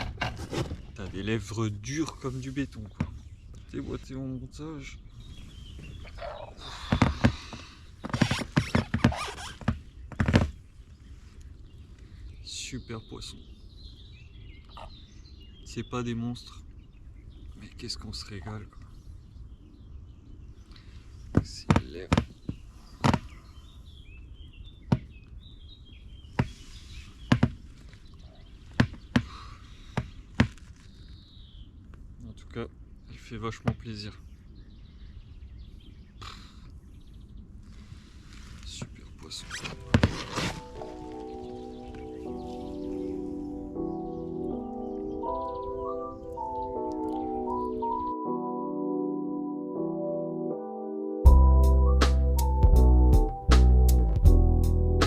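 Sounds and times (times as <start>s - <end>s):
rustling and scraping: 0.0s - 1.5s, 30.0s - 31.3s, 37.6s - 43.1s
small bird twittering: 3.1s - 10.2s, 12.8s - 31.7s
sharp knocks and taps: 21.3s - 23.2s, 27.3s - 27.6s.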